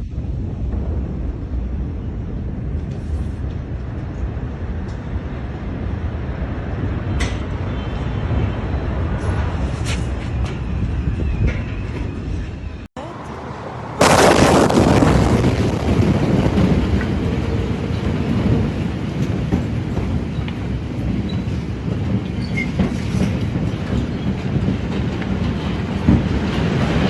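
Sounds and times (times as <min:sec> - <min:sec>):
rumbling roar: 0:13.8 - 0:19.2
loud blast: 0:14.0 - 0:17.0.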